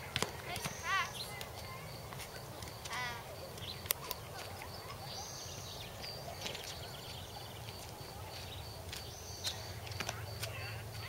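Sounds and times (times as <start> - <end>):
bird chirps and calls: 0.5 - 2.0, 2.9 - 9.8.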